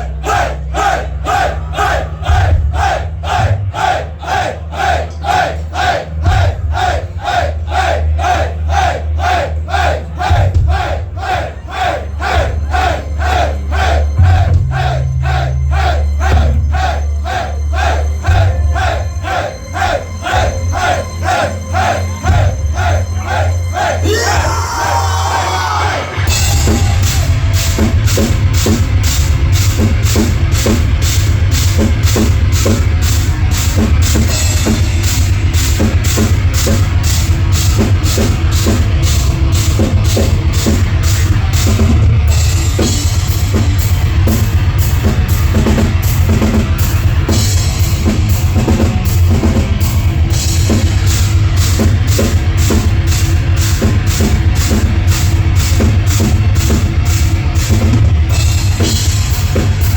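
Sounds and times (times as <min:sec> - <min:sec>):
driving drum beat: 0:00.0 - 0:04.4, 0:06.1 - 0:07.6, 0:09.6 - 0:11.5, 0:22.2 - 0:23.0, 0:24.1 - 0:59.9
heavy metal band playing: 0:00.0 - 0:59.9.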